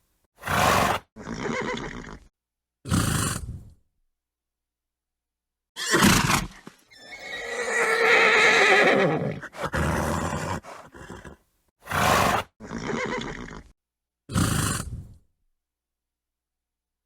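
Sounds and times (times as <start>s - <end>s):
horse whinnying: 0.4s - 2.3s, 5.8s - 13.7s.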